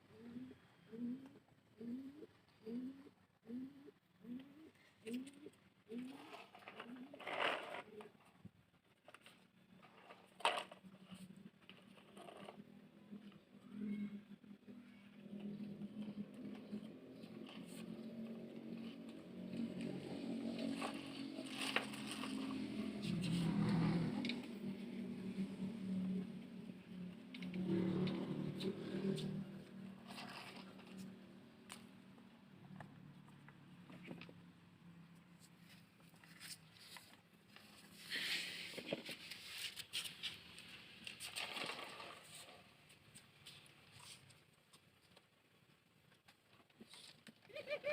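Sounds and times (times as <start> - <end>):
plastic toy trucks scraping: 5.2 - 13.0, 15.4 - 25.7, 27.3 - 31.8, 35.4 - 44.2
plastic toy trucks handled: 35.7 - 44.0
plastic scraping: 36.0 - 42.7.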